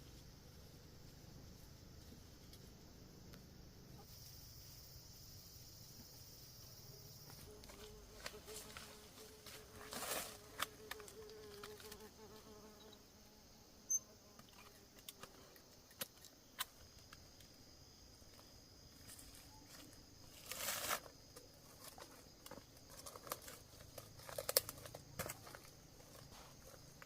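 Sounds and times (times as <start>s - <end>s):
rustle: 0.0s - 17.6s, 18.2s - 27.0s
faint insect drone: 0.0s - 27.0s
light snaps and crackles: 21.8s - 25.4s.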